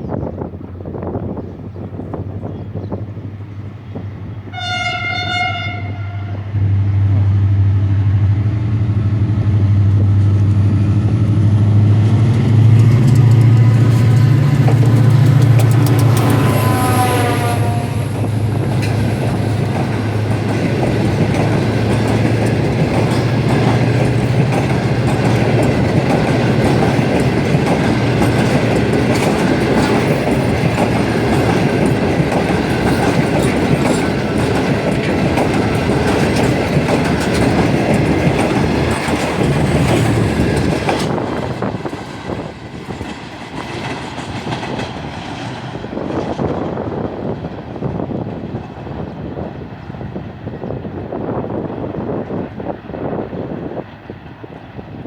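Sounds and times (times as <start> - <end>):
train low hum: 0.0 - 55.0
train wheels clacking over rail joints: 10.0 - 49.6.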